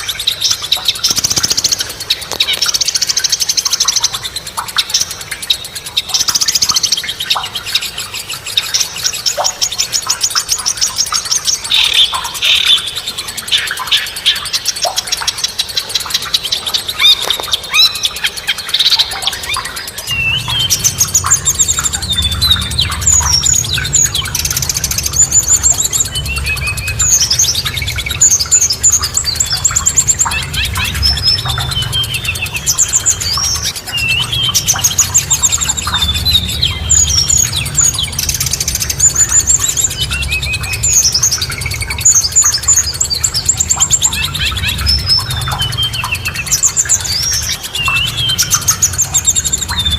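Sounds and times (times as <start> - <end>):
songbirds chirping and singing: 0.0 - 49.9
low steady rumble: 18.6 - 49.9.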